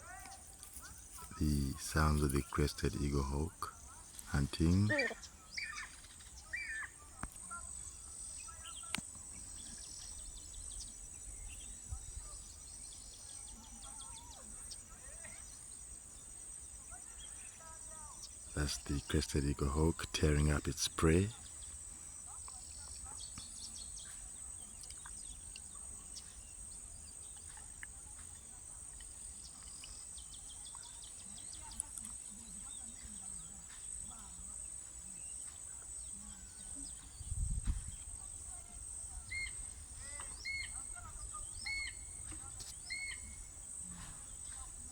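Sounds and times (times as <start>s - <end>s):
birds chirping: 0.0s - 44.9s
bird warbling call: 39.3s - 43.4s.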